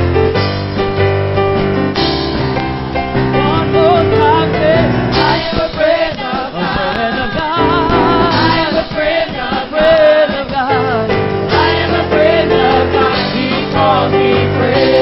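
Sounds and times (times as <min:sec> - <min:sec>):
band with bass and keyboard: 0:00.0 - 0:15.0
choir singing gospel: 0:03.3 - 0:15.0.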